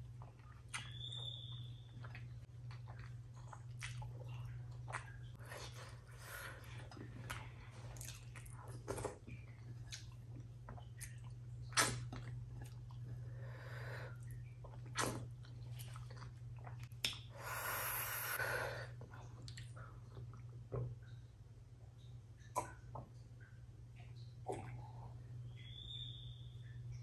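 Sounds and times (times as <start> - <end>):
wet chewing and lip-smacking: 0.0 - 6.1, 6.8 - 13.2, 14.2 - 17.3.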